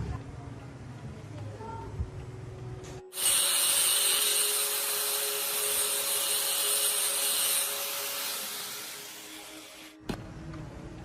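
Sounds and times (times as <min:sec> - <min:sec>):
power tool running with hiss: 0:03.1 - 0:10.0.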